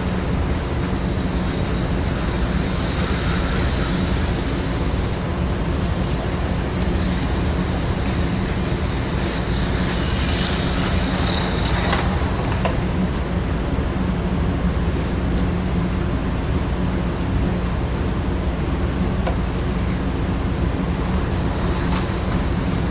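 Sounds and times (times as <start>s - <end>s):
small electric motors humming: 0.0s - 13.6s, 21.0s - 22.9s
wheels rushing on track: 0.0s - 16.0s, 20.9s - 22.9s.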